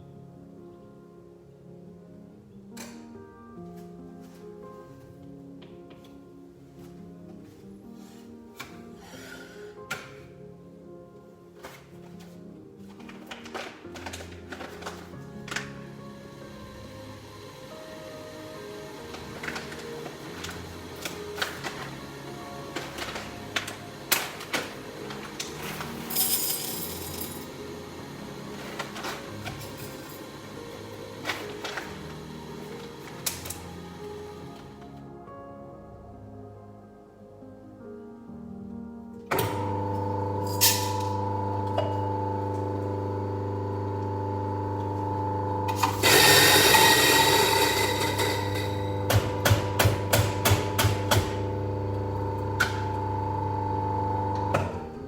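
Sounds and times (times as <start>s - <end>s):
coffee grinder motor humming: 39.5s - 54.5s
rough grinding of beans: 45.8s - 49.1s.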